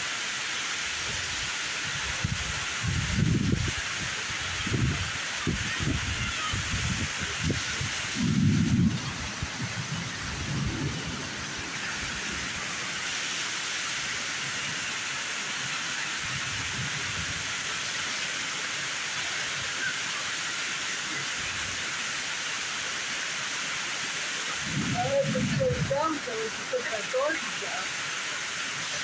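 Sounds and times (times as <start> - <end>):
heavy rain pouring: 0.0 - 29.0
thunder rumbles: 5.6 - 13.0, 24.6 - 27.0.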